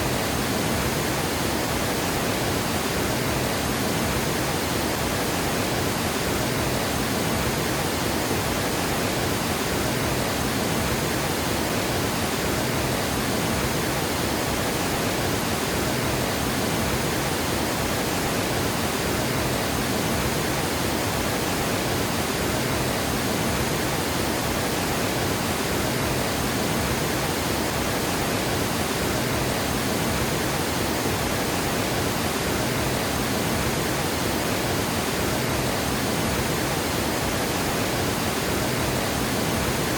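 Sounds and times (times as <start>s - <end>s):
water rushing over dam spillway: 0.0s - 39.9s.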